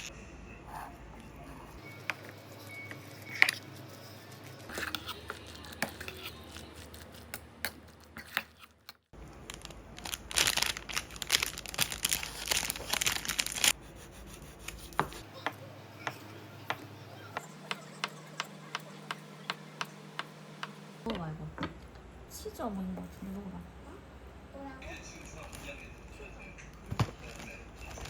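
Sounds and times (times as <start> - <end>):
wrapping crinkling and tearing: 9.3 - 13.8.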